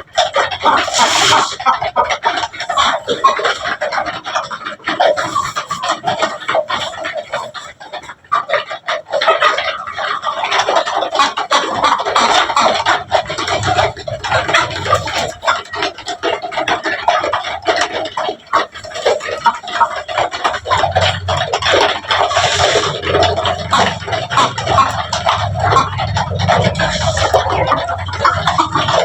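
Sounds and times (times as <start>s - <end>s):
chickens clucking: 0.0s - 29.0s.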